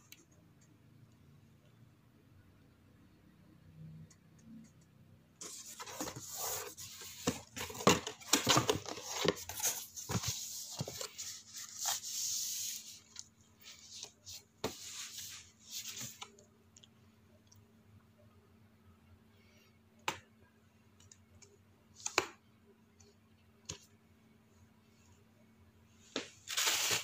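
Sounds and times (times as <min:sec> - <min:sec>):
cardboard rustling and scraping: 0:05.4 - 0:16.2.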